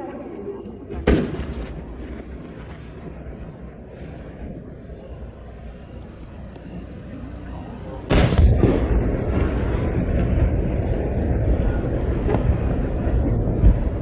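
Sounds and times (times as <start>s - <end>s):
firework shell bursting boom: 0.9s - 4.2s, 8.1s - 14.0s.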